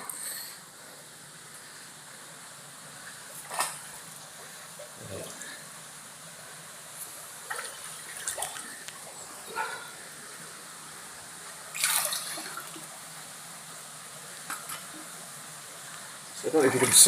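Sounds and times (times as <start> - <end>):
steady water hiss: 0.0 - 17.0
splashes of wading through water: 3.1 - 5.6, 7.2 - 10.0, 11.6 - 13.0.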